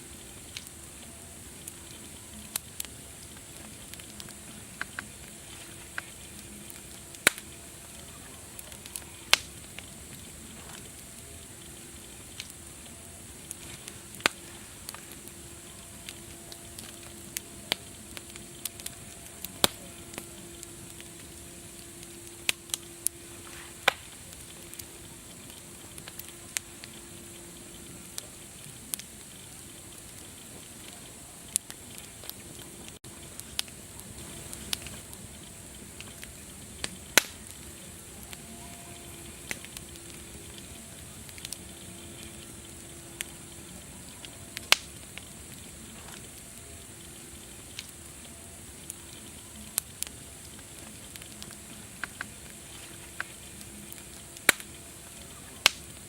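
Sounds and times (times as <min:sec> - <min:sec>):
wood fire crackling and popping: 0:00.0 - 0:56.0
faint low tone: 0:32.4 - 0:44.6.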